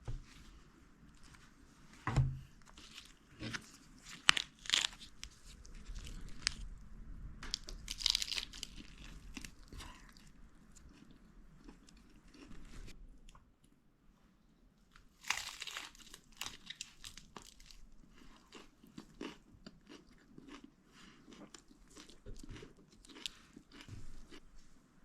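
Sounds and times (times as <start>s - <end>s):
crunching and rustling handling: 0.2s - 11.0s, 15.2s - 18.6s
dull thump: 2.0s - 2.5s.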